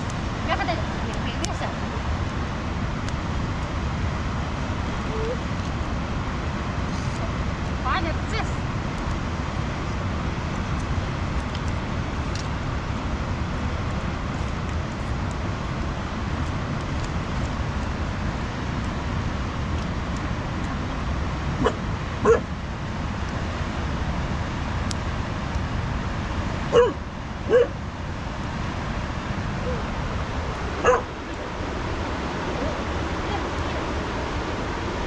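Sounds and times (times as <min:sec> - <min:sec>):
steady rushing noise: 0:00.0 - 0:35.0
dog barking: 0:21.6 - 0:22.5, 0:26.7 - 0:27.8, 0:30.8 - 0:31.1.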